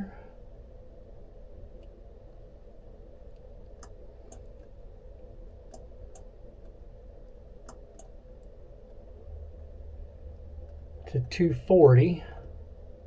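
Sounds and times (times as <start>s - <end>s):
steady low hum: 0.0s - 13.0s
computer mouse clicking: 3.3s - 4.8s, 5.7s - 6.8s, 7.6s - 9.0s.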